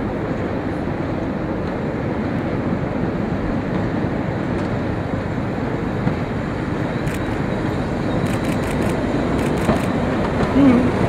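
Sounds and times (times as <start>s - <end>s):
diesel train engine rumble: 0.0s - 11.0s.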